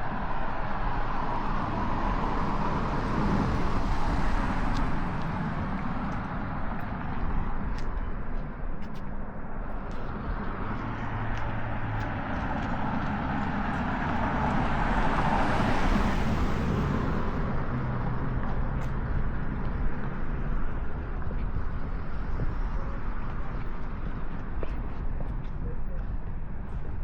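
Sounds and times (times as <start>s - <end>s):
vehicle passing by: 9.9s - 20.6s.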